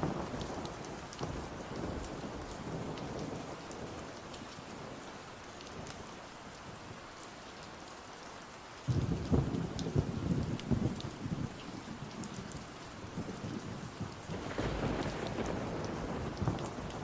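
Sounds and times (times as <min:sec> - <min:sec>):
steady rain: 0:00.0 - 0:17.0
thunder rumble: 0:13.0 - 0:17.0.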